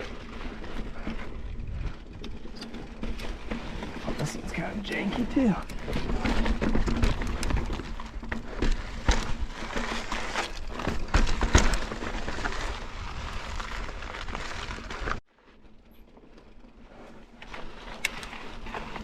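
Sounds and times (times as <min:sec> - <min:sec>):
wind noise: 0:00.0 - 0:15.2
bike knocking and rattling on rock: 0:00.0 - 0:19.0.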